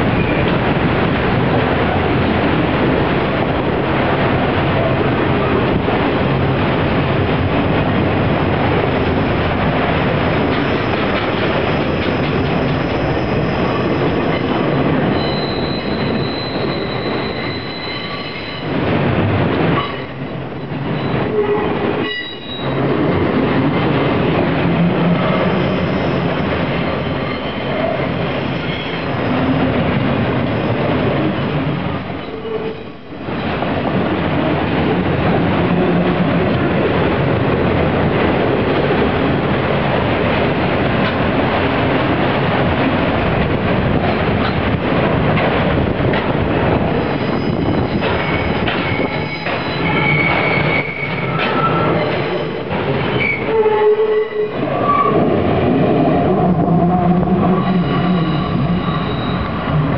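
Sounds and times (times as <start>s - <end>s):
freight train wheels rumbling: 0.0s - 59.9s
high wheel squeal: 12.8s - 18.7s, 47.0s - 55.2s, 57.4s - 59.8s.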